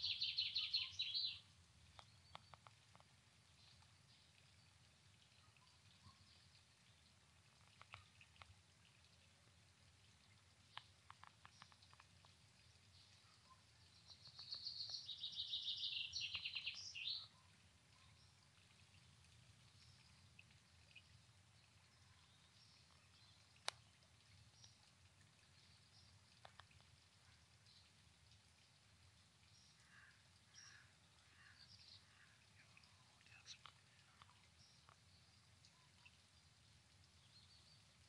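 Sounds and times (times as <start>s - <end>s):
songbird trilling: 0.0s - 1.4s, 14.2s - 17.3s
faint ticks: 1.2s - 15.6s, 16.2s - 36.2s.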